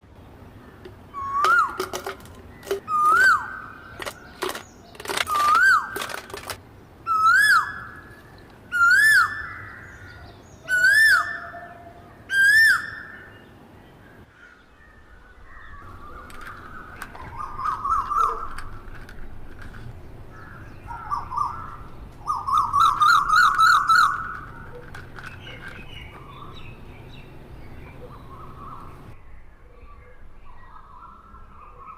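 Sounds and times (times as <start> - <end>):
bird warbling chatter: 0.7 - 7.9, 15.8 - 29.2
bird whistled call: 1.1 - 2.0, 2.6 - 4.3, 5.3 - 6.0, 7.1 - 13.4, 14.9 - 18.6, 20.8 - 26.7
sharp clicks: 4.0 - 6.6.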